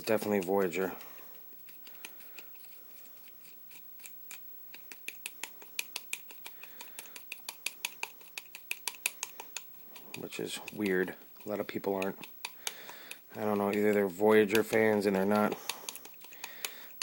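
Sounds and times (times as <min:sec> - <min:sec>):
soldering iron tapping plastic: 0:04.7 - 0:17.0.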